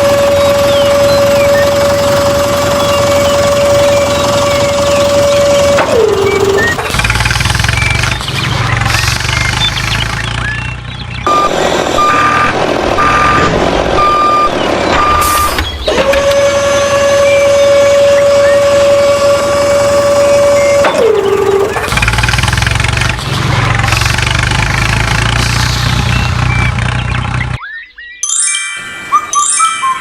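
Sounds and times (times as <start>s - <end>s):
heavy vehicle engine rumbling: 0.0s - 27.6s
reversing beeps: 10.4s - 16.1s, 27.6s - 30.0s.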